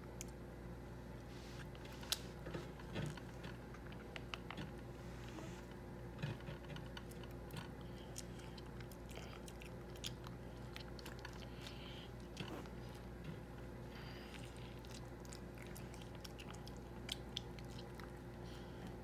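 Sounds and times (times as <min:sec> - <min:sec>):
faint steady hum: 0:00.0 - 0:19.0
child chewing orange: 0:06.3 - 0:19.0.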